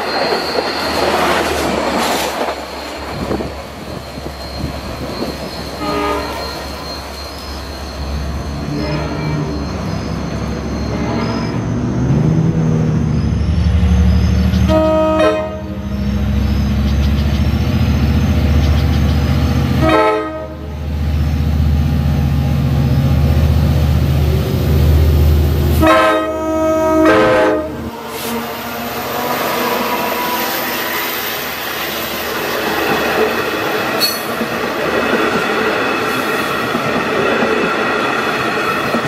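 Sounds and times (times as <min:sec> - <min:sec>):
train horn blasts: 0:05.8 - 0:06.7, 0:08.6 - 0:09.6, 0:14.6 - 0:16.0, 0:19.8 - 0:20.8, 0:25.7 - 0:30.7.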